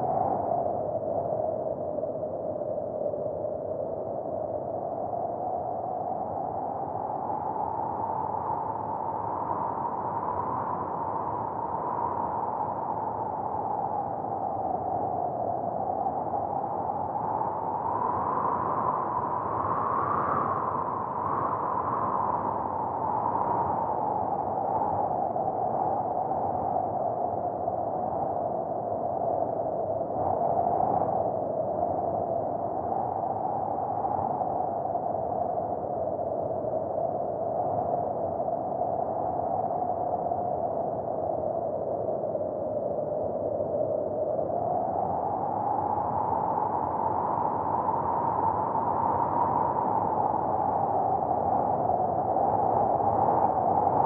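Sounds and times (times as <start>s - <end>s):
blizzard wind howling: 0.0s - 54.0s.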